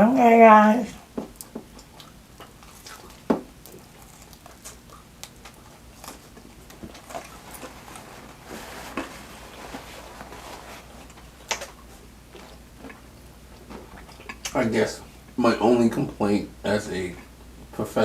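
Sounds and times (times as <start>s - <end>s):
chewing and mouth smacks: 1.0s - 8.1s, 11.0s - 14.6s.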